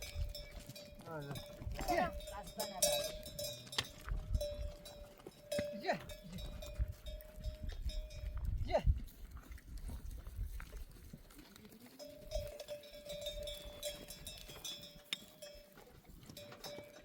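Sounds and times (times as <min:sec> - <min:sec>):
faint animal bells ringing: 0:00.0 - 0:17.0.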